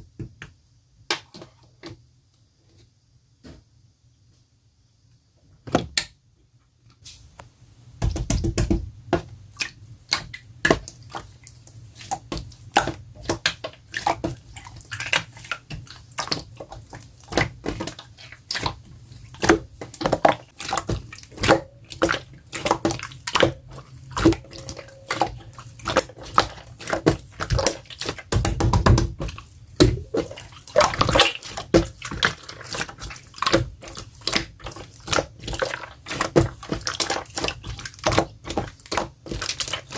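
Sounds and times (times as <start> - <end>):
slime squelching by hand: 8.1 - 39.9.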